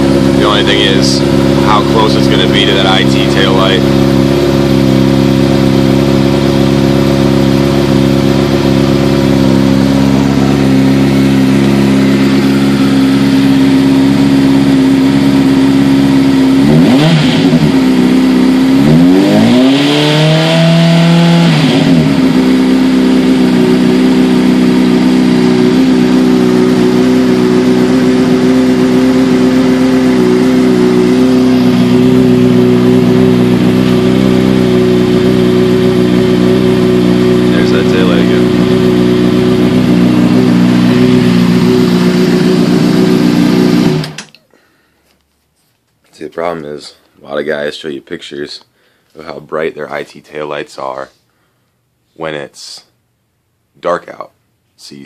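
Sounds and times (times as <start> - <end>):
motorcycle engine idling: 0.0 - 19.3, 21.4 - 45.0
engine revving: 0.0 - 44.4.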